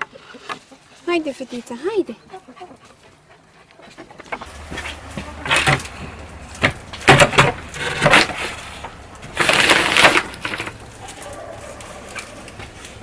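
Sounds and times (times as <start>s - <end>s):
dry corn stalks crunching: 4.4s - 13.0s.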